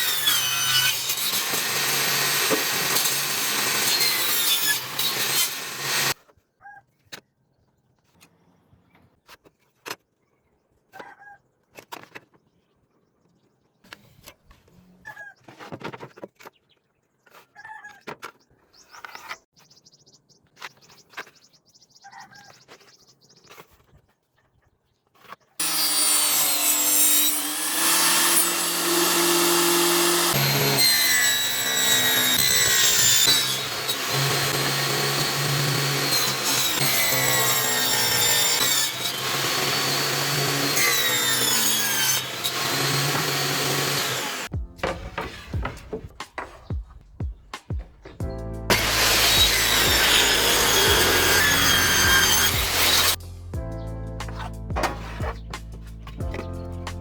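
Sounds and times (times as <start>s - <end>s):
power tool cutting wood: 0.0s - 6.2s, 25.6s - 45.6s, 48.7s - 53.2s.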